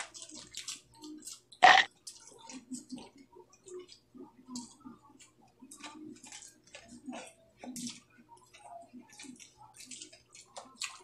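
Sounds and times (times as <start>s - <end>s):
people chewing: 0.0s - 11.0s.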